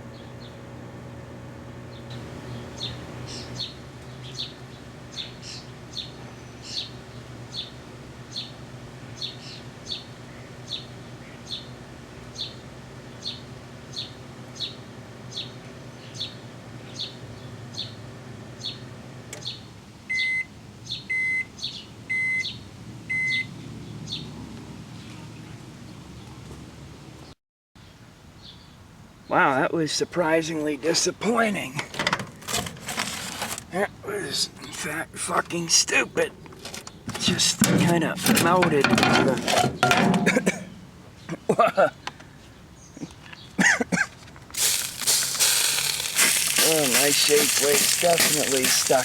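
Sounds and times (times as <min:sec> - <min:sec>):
microwave oven humming: 0:00.0 - 0:23.6, 0:36.2 - 0:41.3
microwave beeps: 0:20.1 - 0:20.5, 0:21.1 - 0:21.5, 0:22.1 - 0:22.5, 0:23.1 - 0:23.5.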